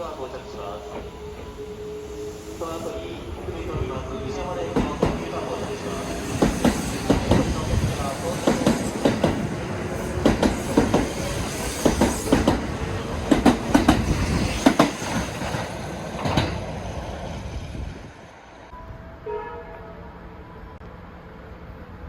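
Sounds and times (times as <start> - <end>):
train wheels clacking over rails: 4.3 - 17.3.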